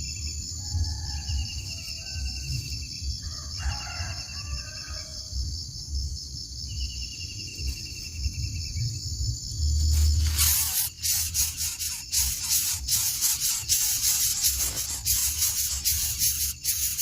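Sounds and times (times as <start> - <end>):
short insect trills: 6.8 - 17.0
pulsing insect drone: 8.2 - 17.0.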